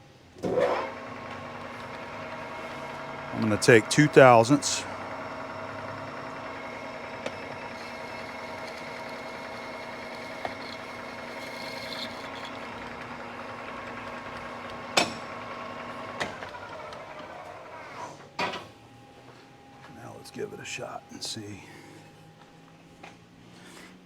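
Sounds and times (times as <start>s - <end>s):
lathe gear-train whine: 0.1s - 23.5s
lathe spindle winding down: 0.4s - 18.2s.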